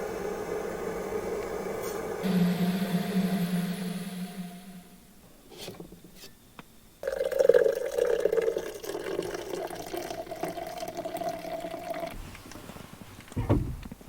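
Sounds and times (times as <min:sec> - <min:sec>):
liquid pouring into container: 0:07.0 - 0:12.2.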